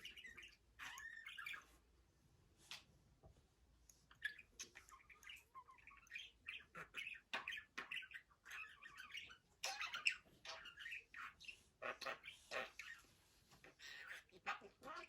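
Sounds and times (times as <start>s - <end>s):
budgerigar chattering and warbling: 0.0s - 1.7s, 4.1s - 15.0s.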